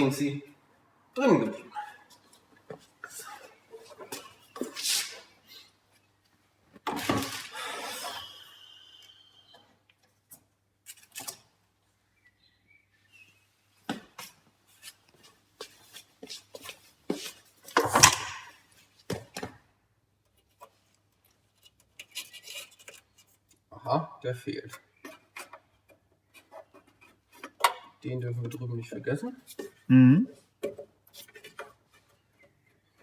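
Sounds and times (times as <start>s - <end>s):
tools and parts clattering: 16.6s - 18.5s.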